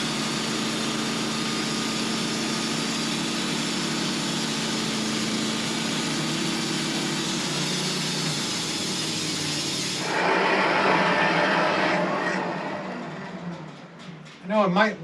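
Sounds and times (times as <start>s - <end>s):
bandsaw mill engine running: 0.0s - 14.5s
saw blade cutting wood: 6.6s - 14.3s.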